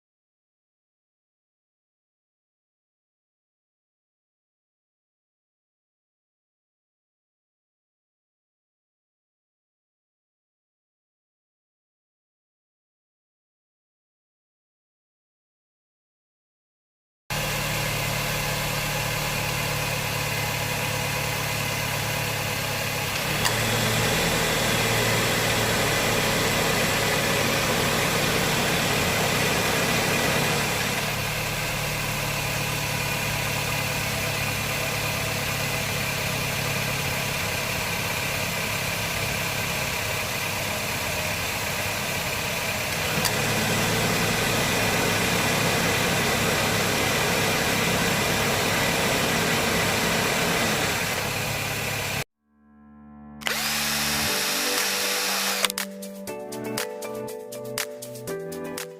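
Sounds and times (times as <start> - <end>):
car engine idling: 17.3 - 52.2
compressor clutch click: 23.0 - 24.1, 42.8 - 43.6.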